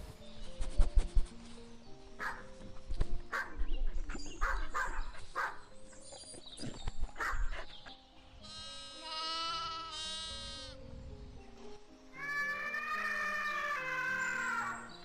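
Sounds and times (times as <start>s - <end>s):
dog barking: 2.2s - 2.5s, 3.3s - 3.6s, 4.4s - 5.6s, 7.2s - 7.7s
lambs bleating: 8.4s - 10.8s.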